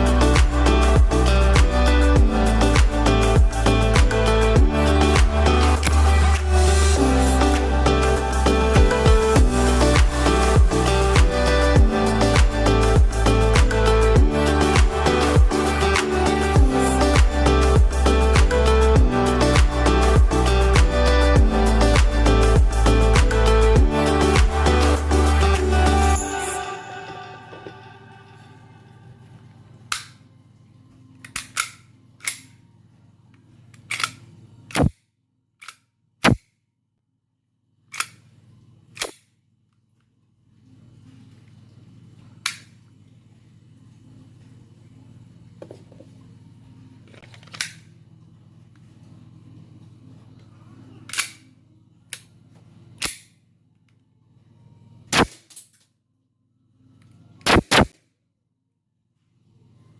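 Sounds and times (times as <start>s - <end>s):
airsoft pistol shots: 55.1s - 55.4s, 57.5s - 58.0s.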